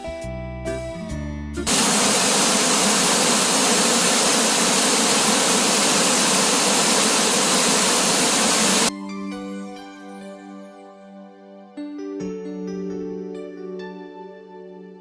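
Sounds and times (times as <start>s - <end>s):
waterfall rushing: 1.7s - 8.9s.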